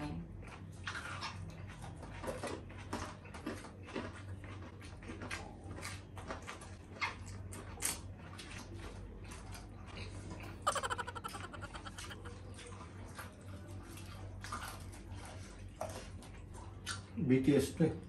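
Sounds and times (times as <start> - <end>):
wet smacking chewing: 9.2 - 13.3.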